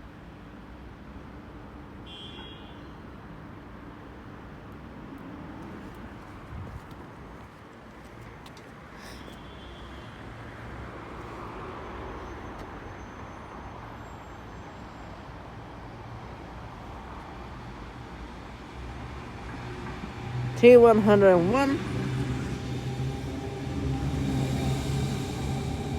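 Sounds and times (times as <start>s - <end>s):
electric train rumbling on rails: 10.3s - 25.9s.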